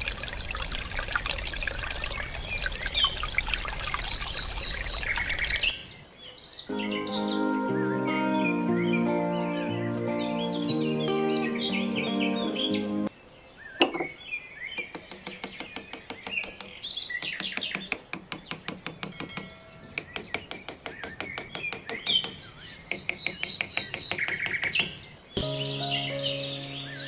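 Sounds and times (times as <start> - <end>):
birds chirping: 2.1 - 27.0
background music: 6.7 - 13.1, 25.4 - 27.0.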